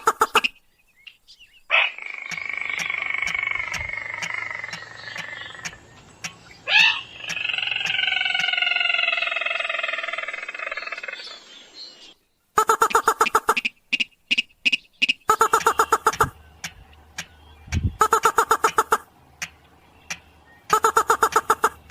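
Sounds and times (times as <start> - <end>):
rail bird calls: 0.0 - 21.9
short choppy bird notes: 12.6 - 21.9.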